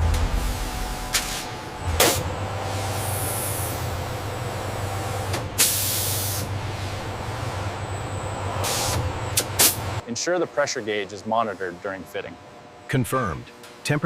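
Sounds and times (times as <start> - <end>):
compressed air hissing: 0.0 - 6.6, 8.6 - 10.0
low machinery hum: 0.0 - 13.0.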